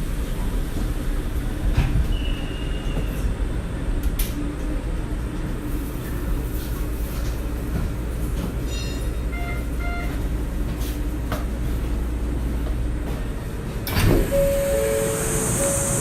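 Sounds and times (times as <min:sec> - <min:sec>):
monorail car rumble: 0:00.0 - 0:16.0
short beeps: 0:14.3 - 0:16.0.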